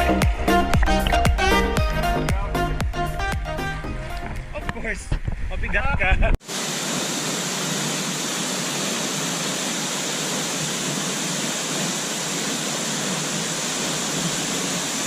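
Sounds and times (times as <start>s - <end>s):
waterfall rushing: 6.4s - 15.0s.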